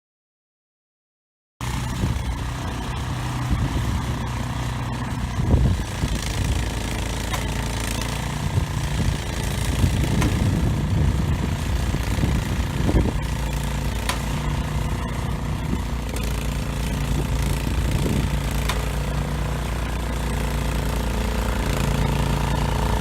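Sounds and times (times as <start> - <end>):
engine running steadily: 1.6 - 23.0.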